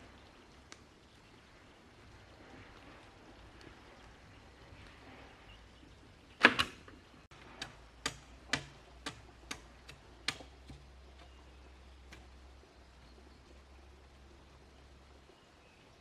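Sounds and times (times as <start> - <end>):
sharp knocks: 7.5 - 10.9.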